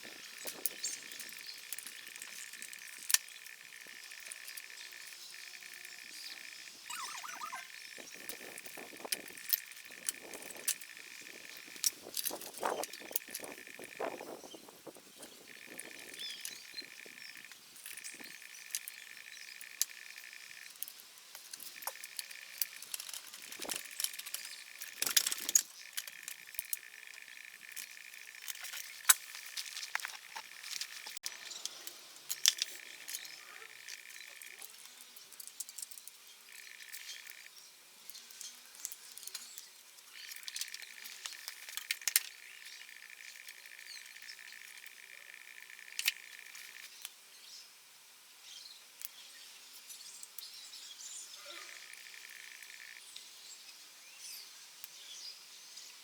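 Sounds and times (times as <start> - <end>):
insect trilling: 0.0 - 21.0, 21.6 - 34.9, 36.4 - 37.6, 40.1 - 46.9, 51.4 - 53.0.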